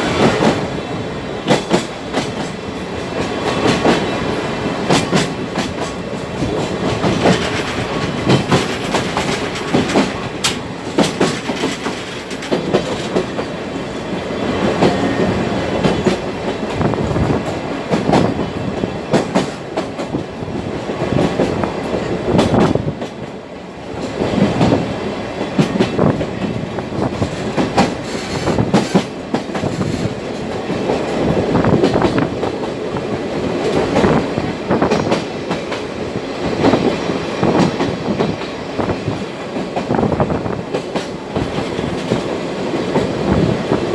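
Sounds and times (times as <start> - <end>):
wheels clacking over rail joints: 0.0 - 23.4
train wheels rumbling on rail: 0.0 - 43.9.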